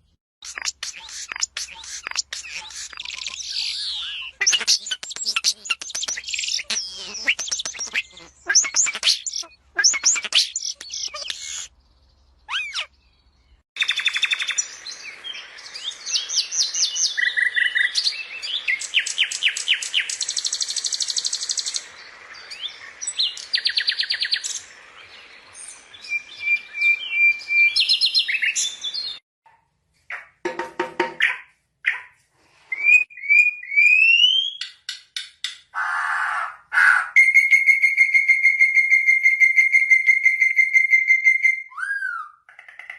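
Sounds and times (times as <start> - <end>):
songbirds chirping and singing: 0.0 - 29.2.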